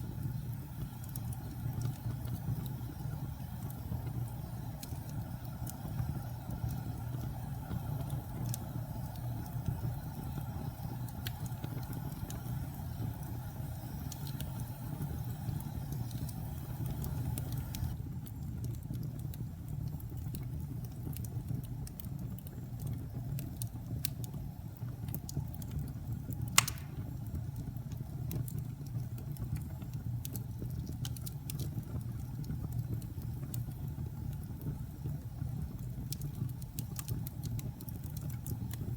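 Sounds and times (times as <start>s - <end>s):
wood fire crackling: 0.0s - 38.9s
loud pop of fire: 26.5s - 27.3s.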